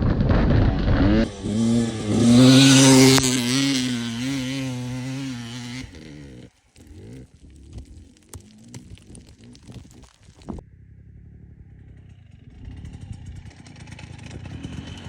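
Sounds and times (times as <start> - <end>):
dirt bike engine revving: 0.0 - 7.3.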